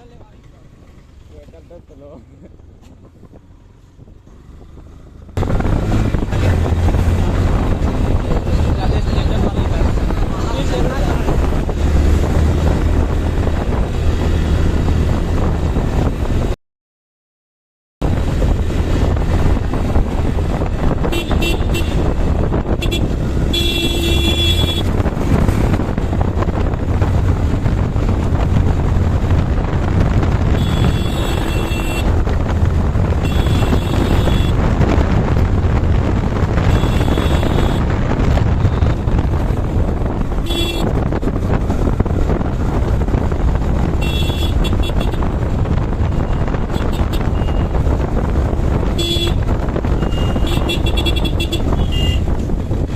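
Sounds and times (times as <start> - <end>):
motorcycle engine: 0.0 - 16.5, 18.0 - 52.9
wind: 0.0 - 16.6, 18.0 - 52.9
vehicle horn honks: 21.1 - 22.1, 22.7 - 24.9, 30.6 - 32.1, 33.2 - 34.6, 36.6 - 37.9, 40.4 - 41.0, 44.0 - 45.3, 48.9 - 52.3.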